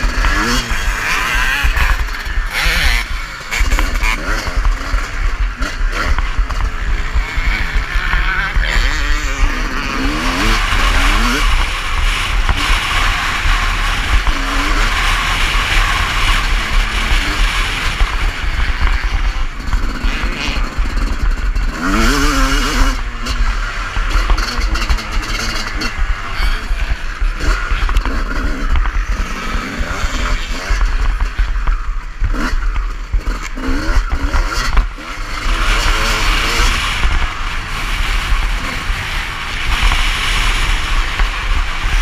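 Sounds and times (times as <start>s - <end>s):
motocross bike engine revving: 0.0s - 42.0s.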